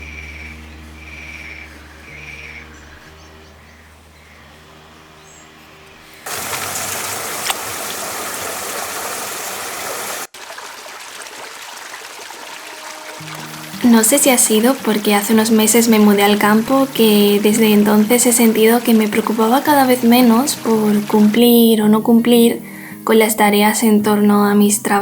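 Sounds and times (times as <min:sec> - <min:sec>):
soft background music: 0:00.0 - 0:06.3, 0:12.5 - 0:25.0
water rushing: 0:06.1 - 0:22.3.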